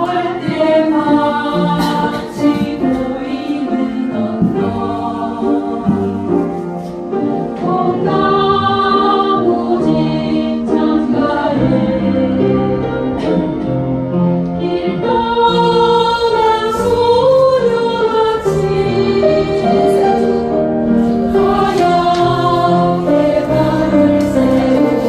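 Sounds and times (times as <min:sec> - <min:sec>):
choir singing slow song: 0:00.0 - 0:25.0.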